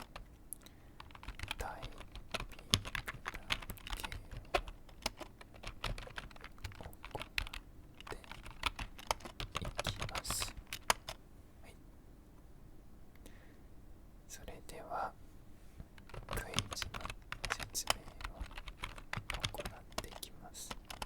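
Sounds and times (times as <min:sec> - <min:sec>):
typing on keyboard: 0:00.0 - 0:00.3, 0:01.0 - 0:11.2, 0:16.0 - 0:21.0.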